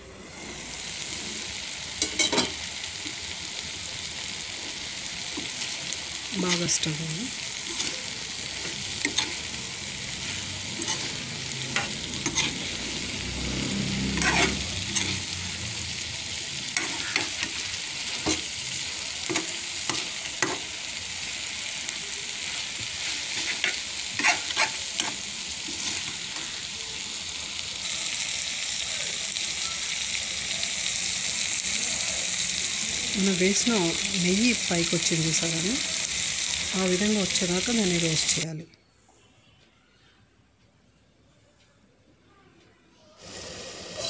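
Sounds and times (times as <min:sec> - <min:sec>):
chicken sizzling in a frying pan: 0:00.0 - 0:38.6, 0:43.2 - 0:44.0
spatula scraping and knocking pan: 0:22.8 - 0:26.2.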